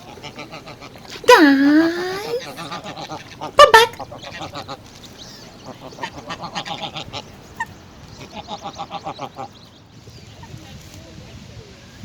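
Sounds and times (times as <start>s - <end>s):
short high peeps: 1.3s - 2.6s, 3.6s - 4.0s
waterfowl calling rapidly: 1.3s - 4.8s.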